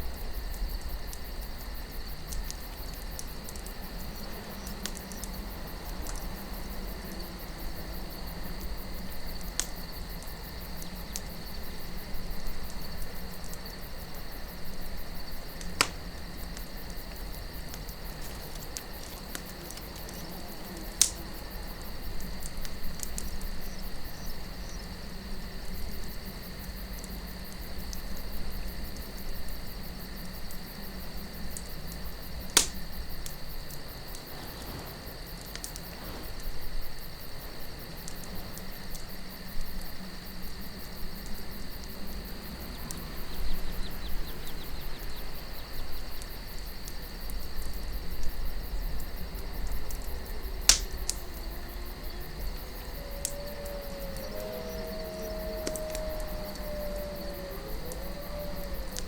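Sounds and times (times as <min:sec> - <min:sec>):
campfire crackling: 0:00.0 - 0:59.0
low steady wind: 0:00.0 - 0:59.0
sharp pops from burning wood: 0:00.2 - 0:21.4, 0:22.1 - 0:24.2, 0:31.2 - 0:36.5, 0:49.6 - 0:51.5.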